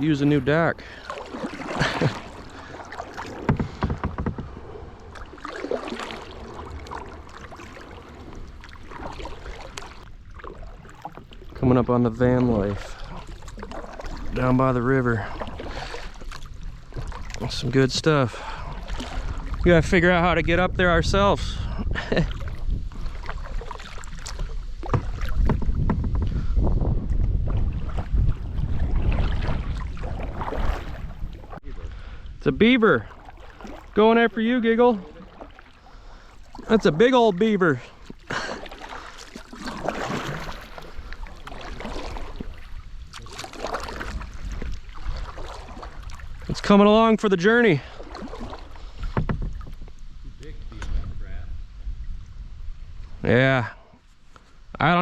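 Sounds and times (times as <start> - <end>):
wind rumbling on microphone: 0.0 - 34.4, 39.6 - 47.0, 48.0 - 54.0
paddle splashing in water: 0.0 - 51.2
short knocks: 3.2 - 4.6.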